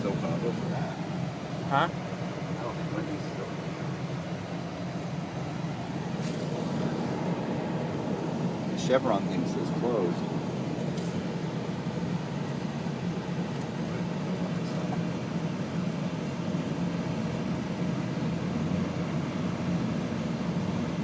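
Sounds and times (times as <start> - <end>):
car cabin road and engine noise: 0.0 - 21.0.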